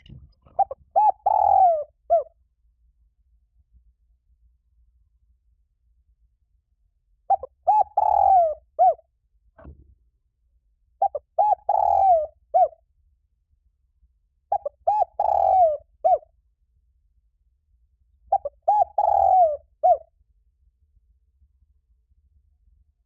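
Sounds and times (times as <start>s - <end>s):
dove cooing: 0.5s - 2.3s, 7.3s - 9.0s, 11.0s - 12.8s, 14.5s - 16.2s, 18.3s - 20.1s.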